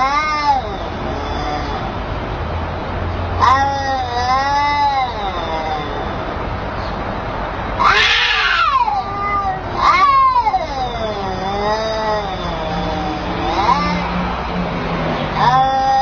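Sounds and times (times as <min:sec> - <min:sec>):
cat yowling: 0:00.0 - 0:02.0, 0:03.4 - 0:06.4, 0:07.8 - 0:14.3, 0:15.3 - 0:16.0.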